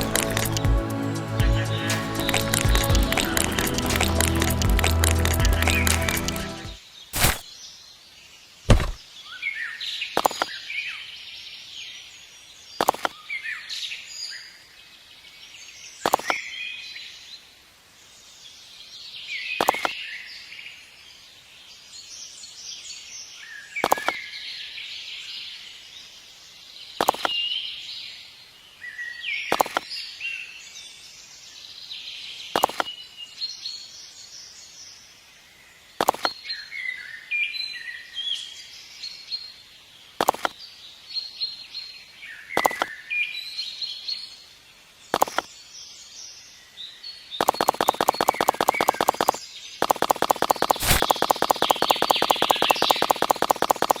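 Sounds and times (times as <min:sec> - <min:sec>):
wild birds chirping and singing: 0:00.0 - 0:04.8, 0:05.4 - 0:54.0
sharp click: 0:07.2 - 0:07.4, 0:08.7 - 0:09.0, 0:12.8 - 0:13.1, 0:27.0 - 0:27.3, 0:29.5 - 0:29.8, 0:32.6 - 0:32.9, 0:36.0 - 0:36.4, 0:40.2 - 0:40.6, 0:42.6 - 0:42.9, 0:45.1 - 0:45.5, 0:47.4 - 0:54.0.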